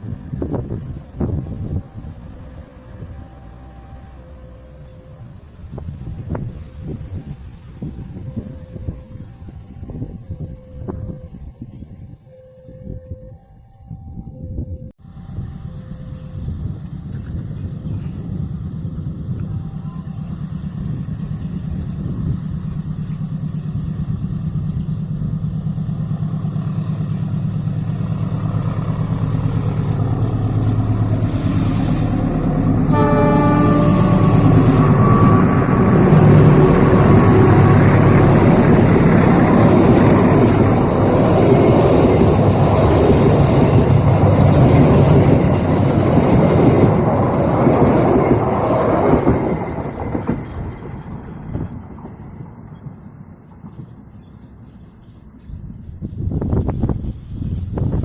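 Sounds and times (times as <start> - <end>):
train wheels rumbling on rail: 0.0 - 13.0, 15.0 - 58.0
locomotive engine humming: 0.0 - 58.0
train horn blast: 0.7 - 6.5, 28.2 - 45.5.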